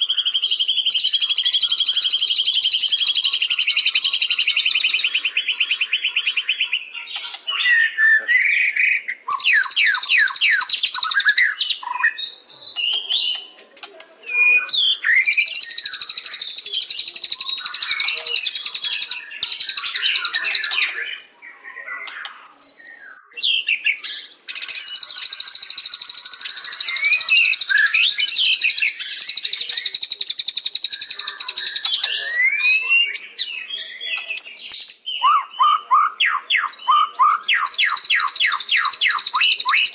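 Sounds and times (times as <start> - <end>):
bird whistling phrases: 0.0 - 13.5, 14.2 - 39.9
bird singing high trills: 14.2 - 39.9.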